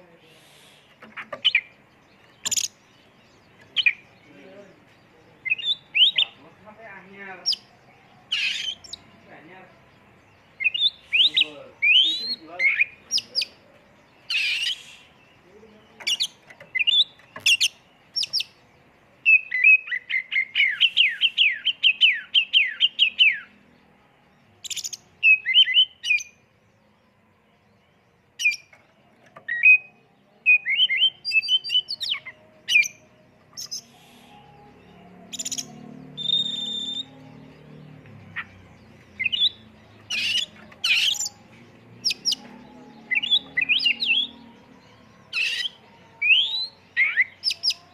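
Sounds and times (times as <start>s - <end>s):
bird singing whistles and chirps: 5.4s - 6.5s, 10.4s - 13.6s, 14.2s - 18.6s, 19.2s - 23.5s, 24.6s - 26.4s, 28.4s - 47.9s.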